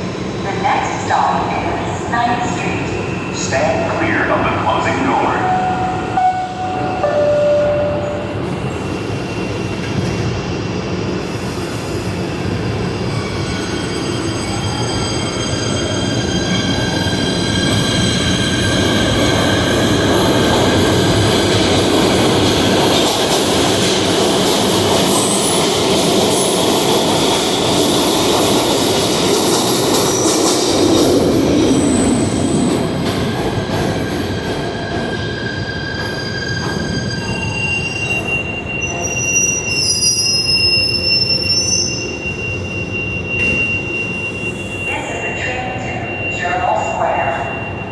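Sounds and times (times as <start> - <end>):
train wheels squealing on rails: 0.0 - 47.9
train rumble: 15.5 - 39.4.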